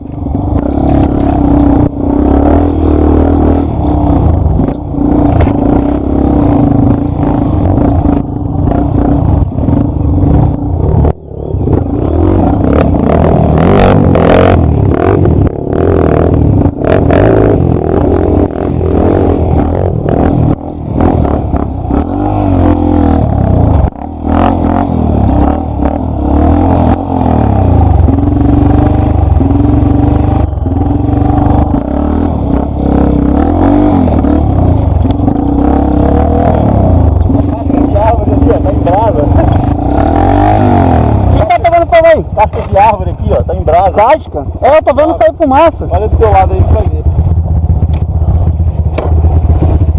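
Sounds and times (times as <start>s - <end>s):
motorcycle engine revving: 0.0s - 49.9s
motorcycle knocking over rough ground: 47.2s - 49.9s.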